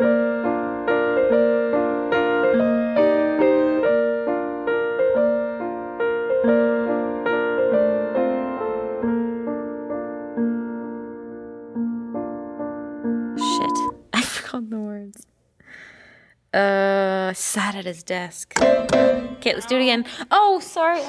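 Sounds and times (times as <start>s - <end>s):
slow gentle piano chords: 0.0s - 14.0s.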